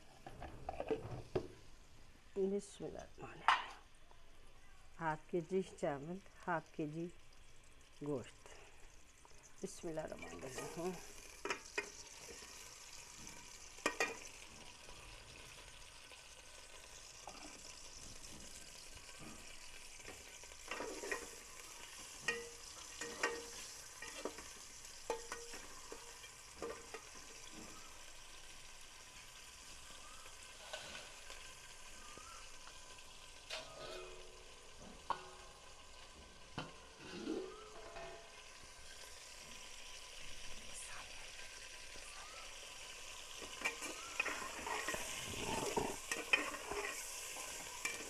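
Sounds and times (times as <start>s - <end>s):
chicken sizzling in hot oil: 4.9s - 48.0s
spoon knocking and scraping pot: 11.4s - 12.6s, 13.2s - 14.3s, 20.1s - 27.8s, 43.4s - 48.0s.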